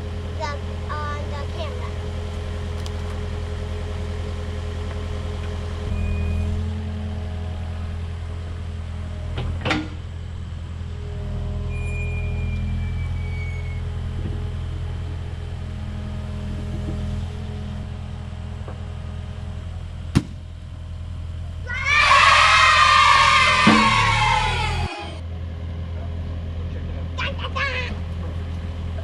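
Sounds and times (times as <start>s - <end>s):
excavator diesel engine running: 0.0s - 29.0s
pumpkin smashing: 2.3s - 3.2s
faint hydraulic whine: 5.8s - 25.2s.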